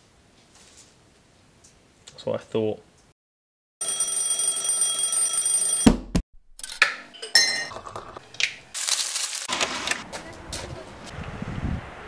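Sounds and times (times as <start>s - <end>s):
alarm clock ringing: 3.8s - 5.9s.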